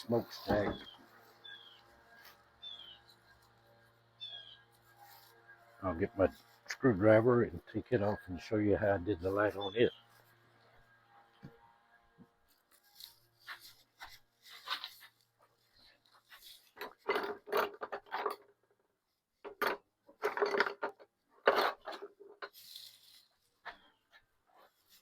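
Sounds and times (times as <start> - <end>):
tools scraping and rubbing: 0.0 - 11.6, 12.2 - 18.6, 20.1 - 25.0.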